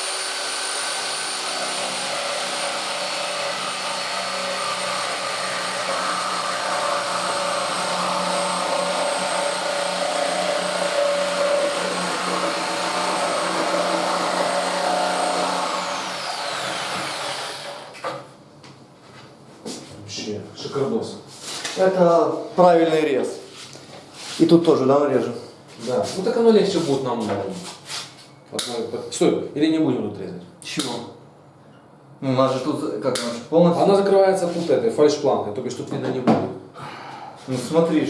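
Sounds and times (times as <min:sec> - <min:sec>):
electric power saw whining: 0:00.0 - 0:18.1.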